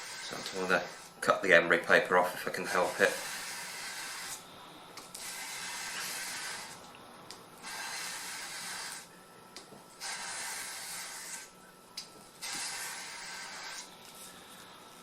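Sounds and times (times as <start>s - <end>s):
steel blade scraping sandpaper: 2.7s - 4.4s, 12.4s - 13.9s.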